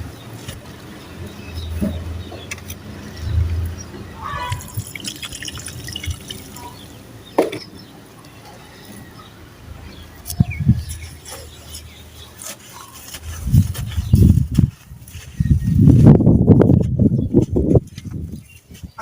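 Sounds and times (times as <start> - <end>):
sand-cement crackling in water: 4.6 - 6.8.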